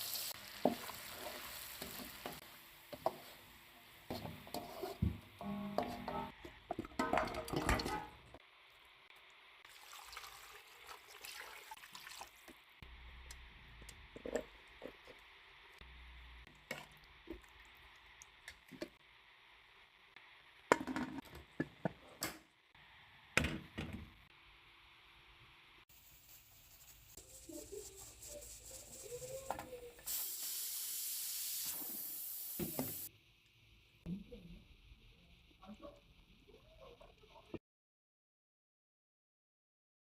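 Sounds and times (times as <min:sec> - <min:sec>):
cookware knocks and clinks: 0:05.7 - 0:08.2
water pouring and splashing: 0:09.6 - 0:12.7, 0:16.5 - 0:19.0.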